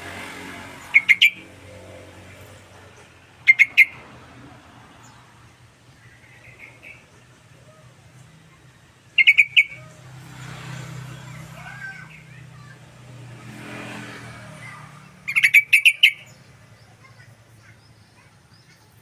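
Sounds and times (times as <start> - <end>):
bulbul singing: 0.6 - 4.0, 4.9 - 10.1, 14.6 - 19.0.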